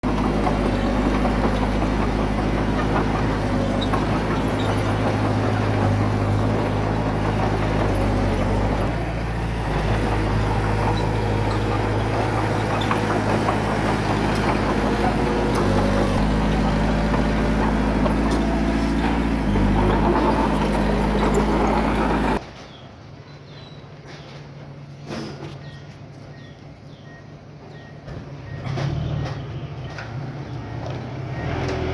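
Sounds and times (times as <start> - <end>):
heavy diesel engine running: 0.0 - 22.4.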